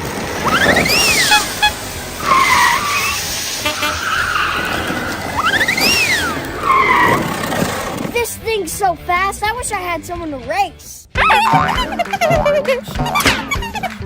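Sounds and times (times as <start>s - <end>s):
racing car engine revving: 0.0s - 8.2s
tyre skid: 0.0s - 8.3s.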